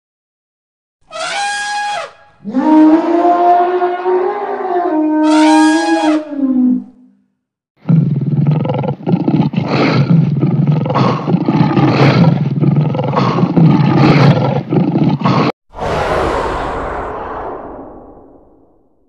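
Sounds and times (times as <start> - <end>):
lions roaring and growling: 7.8 - 15.6.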